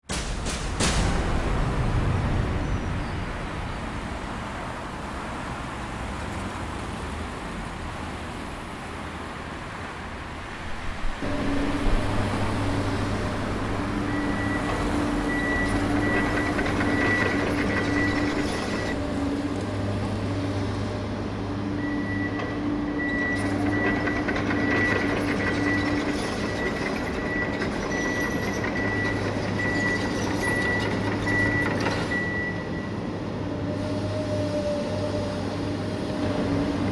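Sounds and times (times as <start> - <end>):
machinery rumble: 0.1 - 8.7, 10.5 - 36.9
machinery hum: 10.5 - 36.9
high machine whine: 11.1 - 36.9.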